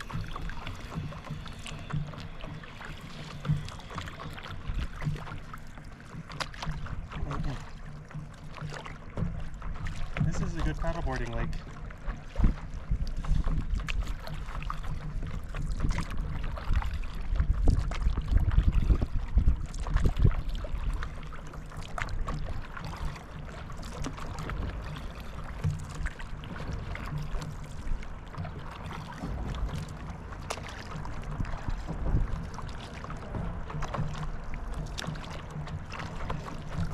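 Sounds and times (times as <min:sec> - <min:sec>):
water splashing around paddle board: 0:00.0 - 0:36.9
wind buffeting microphone: 0:10.0 - 0:36.9.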